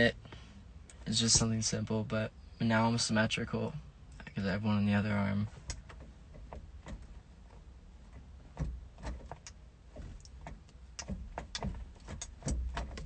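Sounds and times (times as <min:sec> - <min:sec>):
low steady rumble: 0:00.0 - 0:13.0
light clicks and knocks: 0:05.5 - 0:13.0.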